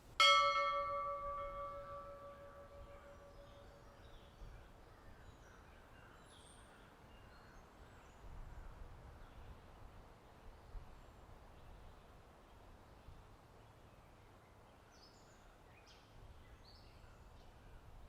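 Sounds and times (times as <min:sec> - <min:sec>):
bell ringing: 0:00.2 - 0:03.6.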